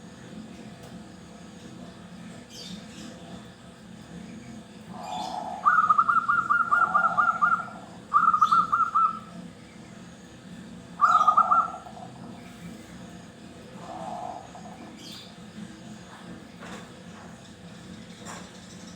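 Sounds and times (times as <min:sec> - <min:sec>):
dove cooing: 0:04.9 - 0:09.4, 0:11.0 - 0:12.6, 0:13.7 - 0:15.2.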